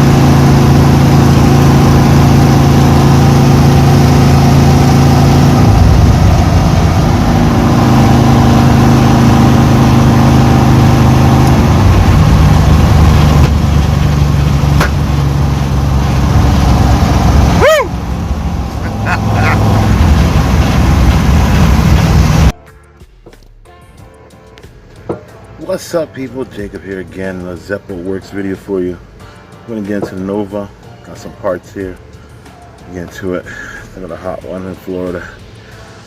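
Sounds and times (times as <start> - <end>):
car engine revving: 0.0 - 22.5.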